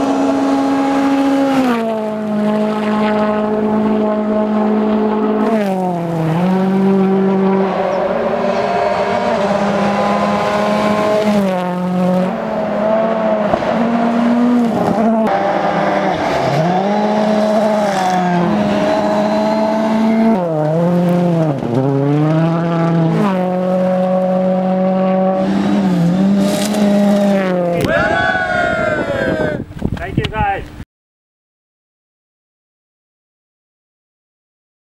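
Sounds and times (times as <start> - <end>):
car engine revving hard: 0.0 - 27.9.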